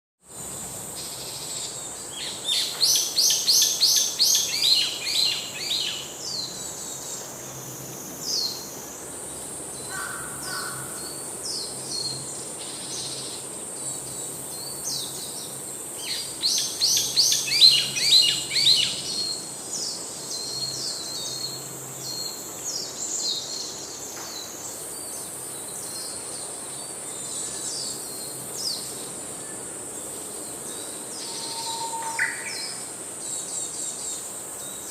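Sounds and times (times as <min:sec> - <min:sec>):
steady high-pitched whine: 0:00.3 - 0:34.9
birds singing: 0:13.9 - 0:34.9
bird chirps: 0:31.2 - 0:32.8.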